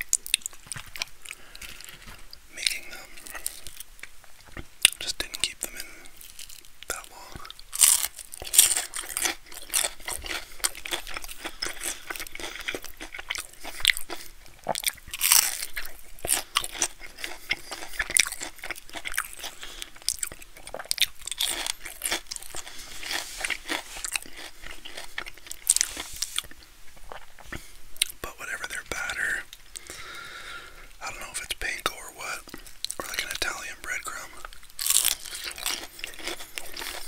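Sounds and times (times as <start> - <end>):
crackly chewing: 0.0 - 37.0
crunchy bites: 5.7 - 28.2, 34.0 - 37.0.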